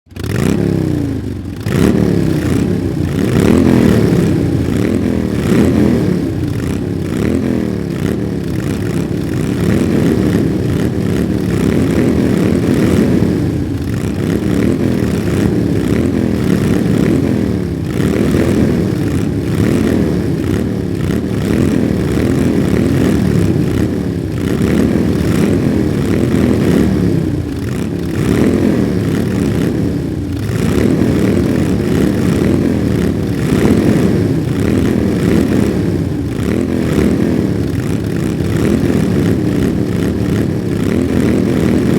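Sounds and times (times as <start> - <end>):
motorcycle engines revving: 0.1 - 41.9.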